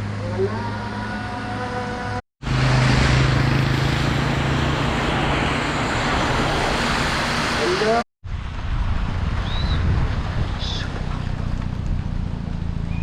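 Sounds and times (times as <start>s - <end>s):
road and wind noise: 0.0s - 13.0s
car engine humming: 10.3s - 13.0s.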